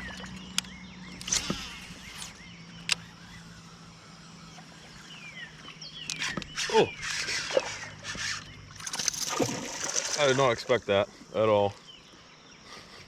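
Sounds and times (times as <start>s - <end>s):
falling bird chirps: 5.5s - 10.9s
sharp clicks: 8.8s - 10.6s.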